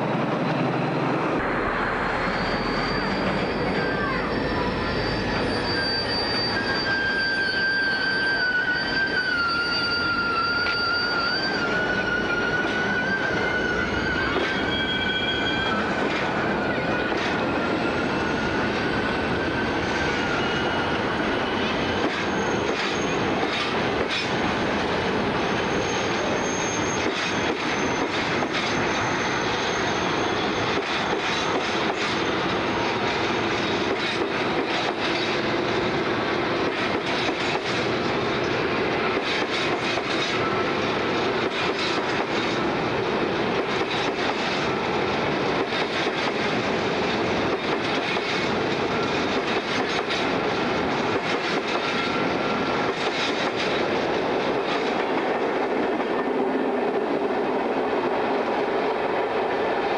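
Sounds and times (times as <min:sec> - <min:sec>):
freight train rolling past: 0:00.0 - 0:59.9
wheels squealing: 0:02.1 - 0:35.8.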